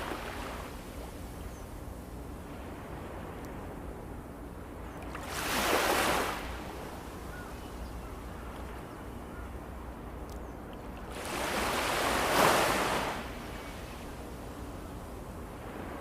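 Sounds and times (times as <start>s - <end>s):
waves washing onto beach: 0.0s - 0.8s, 5.1s - 7.5s, 11.1s - 14.7s
low rumble of sea: 0.0s - 16.0s.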